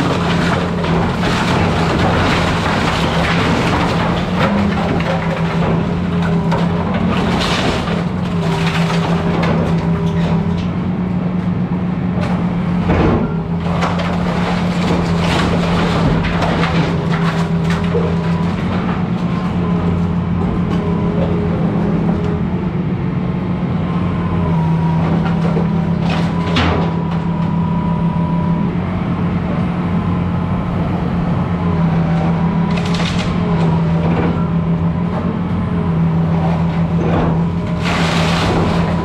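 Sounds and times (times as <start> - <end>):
splintering timber crunches: 0.0 - 10.8, 12.2 - 22.8, 24.4 - 39.0
excavator diesel engine: 0.0 - 39.0.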